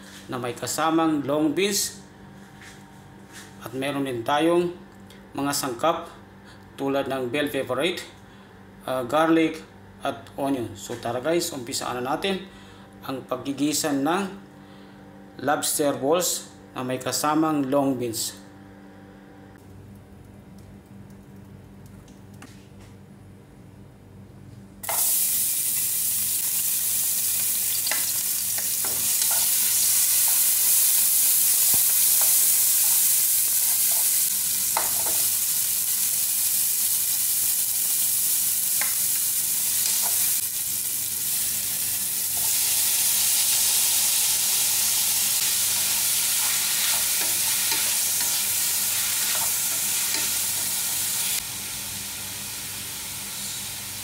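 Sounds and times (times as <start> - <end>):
garlic and onion sizzling in oil: 24.8 - 54.0.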